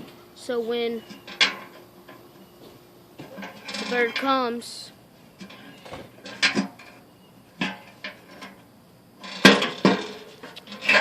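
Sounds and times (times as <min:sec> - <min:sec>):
bucket knocking and clattering: 0:05.4 - 0:07.0, 0:09.2 - 0:11.0.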